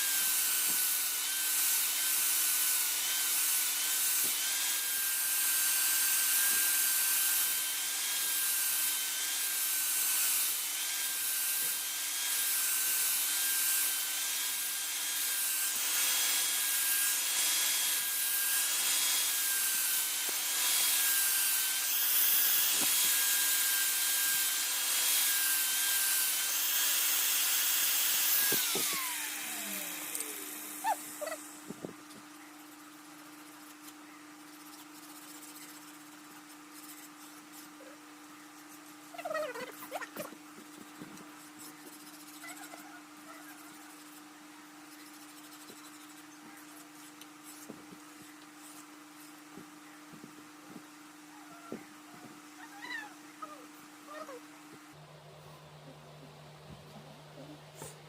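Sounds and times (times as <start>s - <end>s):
electric grinder whining: 0.0s - 32.0s.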